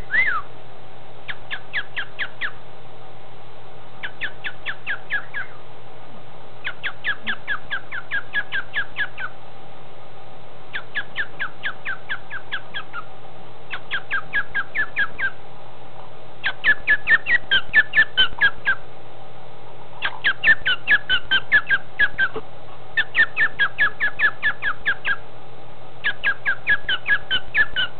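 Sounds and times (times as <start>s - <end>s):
cockatiel chirping: 0.0s - 0.4s, 1.3s - 2.6s, 4.0s - 5.6s, 6.6s - 9.3s, 10.7s - 13.1s, 13.7s - 15.4s, 16.4s - 18.8s, 20.0s - 22.4s, 23.0s - 25.2s, 26.0s - 27.9s.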